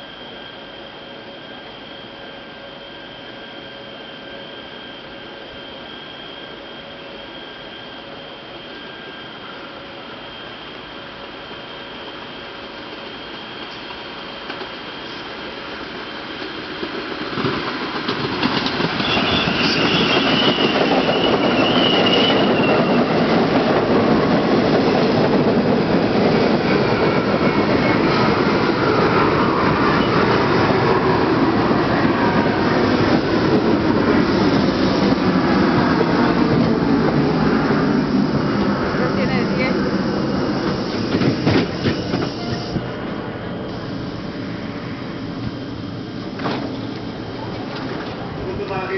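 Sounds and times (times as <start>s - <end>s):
subway train rumbling past: 0.0s - 48.9s
faint high squeal: 19.0s - 23.2s, 28.8s - 31.0s.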